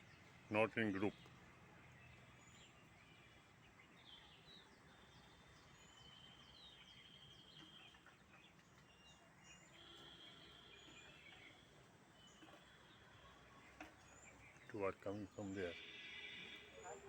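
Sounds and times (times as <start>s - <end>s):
birds chirping: 0.0s - 17.0s
bird trill: 15.4s - 17.0s.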